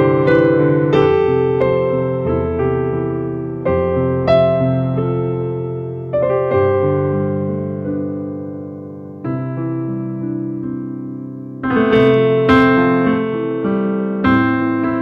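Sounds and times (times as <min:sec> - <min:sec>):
slow electric piano chords: 0:00.0 - 0:15.0.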